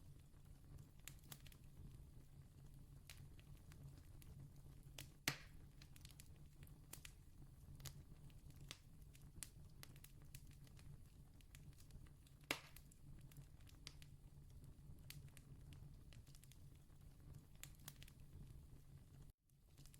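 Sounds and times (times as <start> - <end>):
campfire crackling: 0.1 - 19.1
sharp fire pops: 5.0 - 7.2, 12.4 - 13.0.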